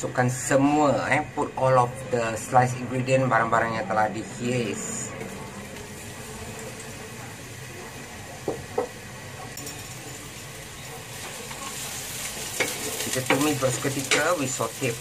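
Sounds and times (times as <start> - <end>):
vegetables sizzling in hot oil: 3.8 - 15.0.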